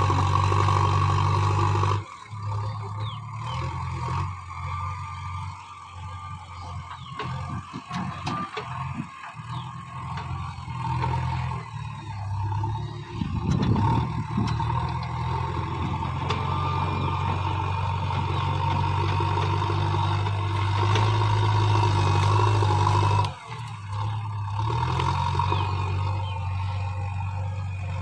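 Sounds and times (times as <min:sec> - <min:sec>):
backhoe diesel engine working: 0:00.0 - 0:28.0
clatter: 0:00.0 - 0:28.0.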